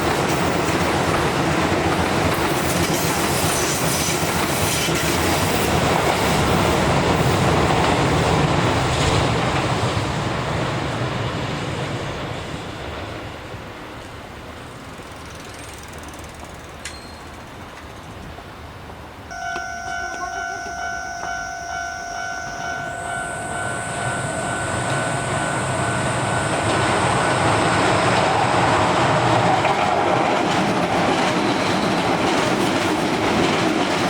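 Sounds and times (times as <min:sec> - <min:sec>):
electric train passing: 0:00.0 - 0:34.0
wheels clattering over rails: 0:19.5 - 0:34.0.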